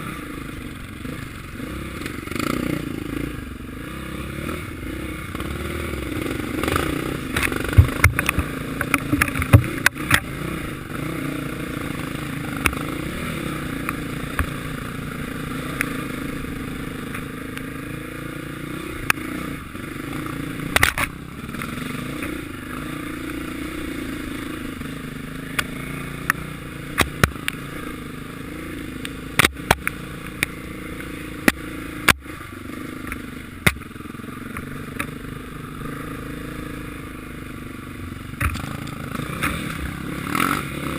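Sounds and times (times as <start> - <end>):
motocross bike engines: 0.0 - 40.9
sharp clicks and knocks: 6.6 - 10.3, 20.7 - 22.4, 25.6 - 27.6, 29.0 - 32.3, 33.0 - 33.9, 38.4 - 39.9.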